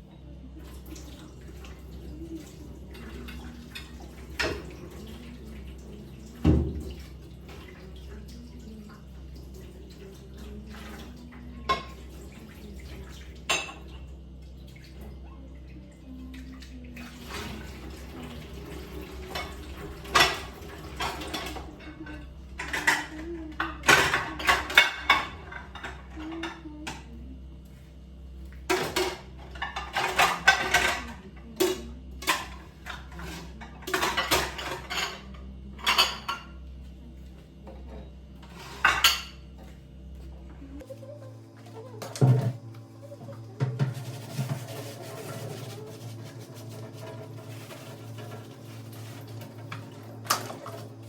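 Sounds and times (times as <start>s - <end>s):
steady low hum: 0.0s - 51.0s
dishes and cutlery clattering: 17.4s - 27.1s, 28.7s - 36.6s, 37.7s - 39.7s, 43.6s - 51.0s.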